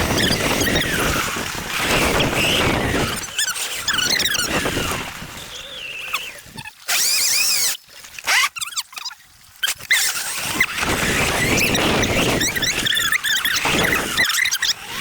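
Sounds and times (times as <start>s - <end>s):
electric dirt bike whine: 0.0s - 6.4s, 10.4s - 15.0s.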